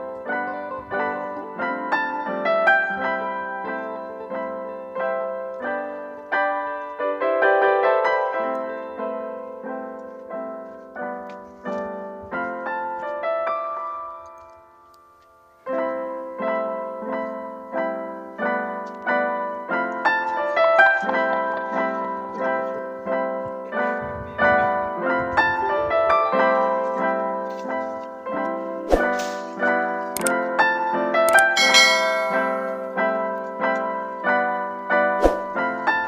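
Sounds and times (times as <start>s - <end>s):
piano music: 0.0s - 36.0s.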